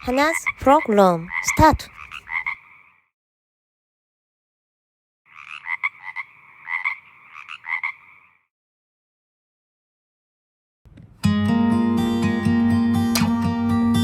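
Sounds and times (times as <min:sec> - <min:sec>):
frog croaking: 0:00.0 - 0:03.1, 0:05.3 - 0:08.5.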